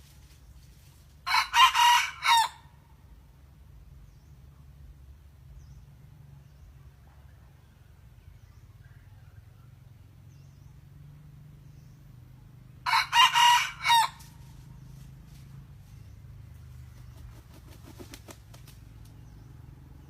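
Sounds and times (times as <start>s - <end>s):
rooster crowing: 1.3s - 2.7s, 12.8s - 14.4s.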